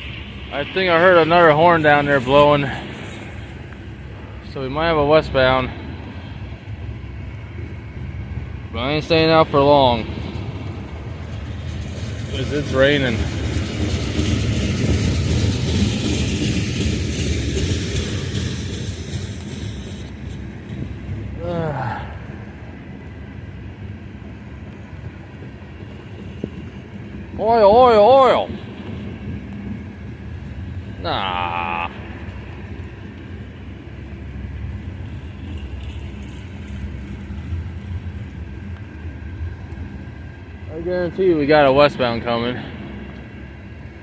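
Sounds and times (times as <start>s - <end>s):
heavy rain hiss: 0.0s - 7.5s, 8.4s - 24.1s
train rumbling on rails: 0.0s - 44.0s
pouring rain: 20.8s - 26.2s.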